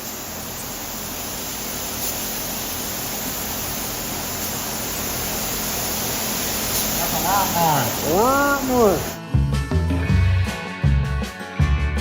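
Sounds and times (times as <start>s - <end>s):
paint spray gun hissing: 0.0s - 9.2s.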